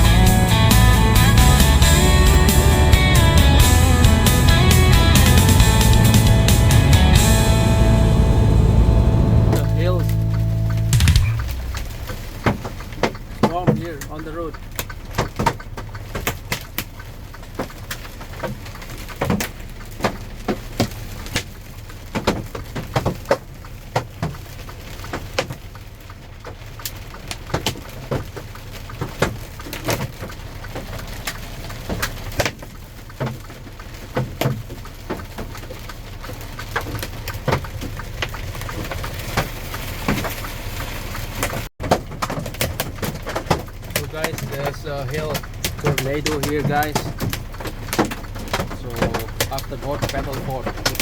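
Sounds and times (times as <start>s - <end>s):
truck engine hum: 0.0s - 22.8s, 23.4s - 51.0s
hail striking windshield: 0.0s - 51.0s.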